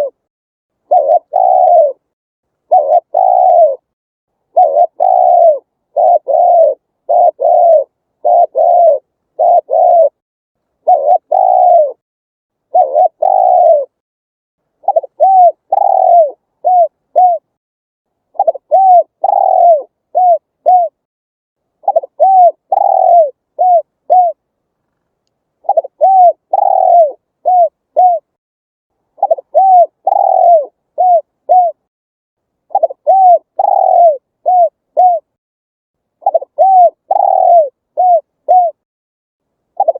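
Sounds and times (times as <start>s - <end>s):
dove cooing: 0.0s - 0.2s, 0.9s - 3.9s, 4.5s - 10.2s, 10.8s - 12.0s, 12.7s - 14.0s, 14.8s - 17.5s, 18.3s - 21.1s, 21.8s - 24.4s, 25.6s - 28.4s, 29.2s - 31.9s, 32.7s - 35.3s, 36.2s - 38.8s.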